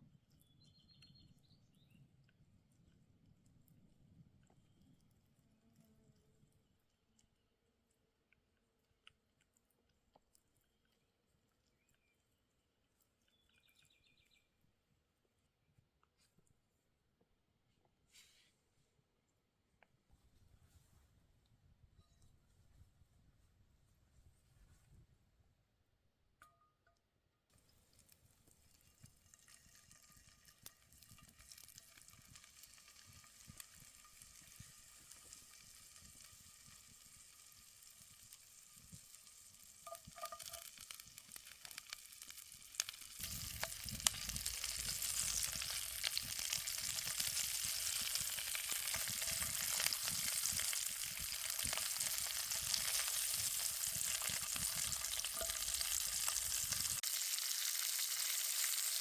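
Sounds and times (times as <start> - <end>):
food sizzling in a skillet: 27.8 - 59.0
campfire crackling: 27.9 - 59.0.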